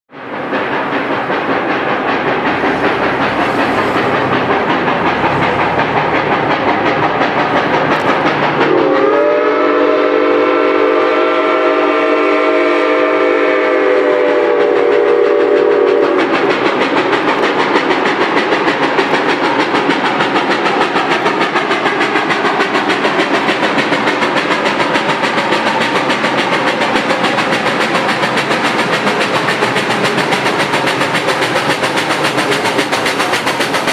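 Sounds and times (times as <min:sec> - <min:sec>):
steam locomotive running: 0:00.1 - 0:33.9
steam whistle blast: 0:08.6 - 0:16.2.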